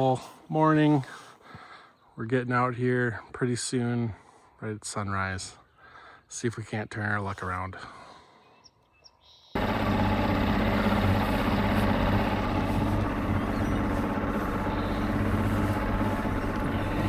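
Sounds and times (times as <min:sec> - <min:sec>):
outboard motor running: 0:09.6 - 0:17.0
rushing wind: 0:09.6 - 0:17.0
water noise: 0:09.6 - 0:17.0.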